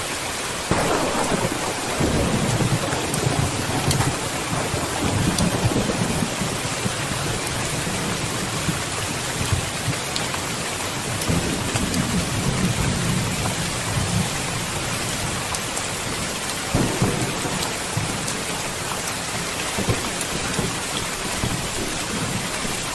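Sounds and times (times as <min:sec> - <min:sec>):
steady rain falling: 0:00.0 - 0:22.9
thunder rumbling: 0:00.7 - 0:22.9.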